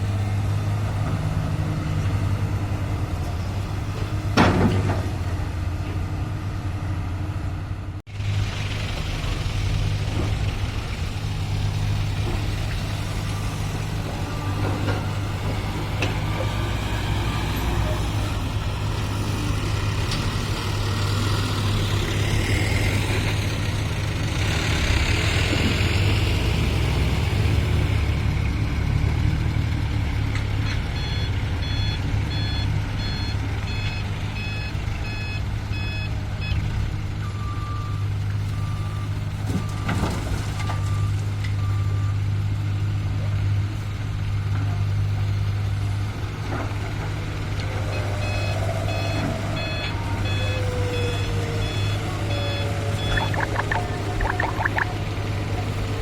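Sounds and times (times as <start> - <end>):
heavy diesel engines running: 0.0 - 56.0
reversing alarm beeps: 31.0 - 36.6, 48.2 - 54.9.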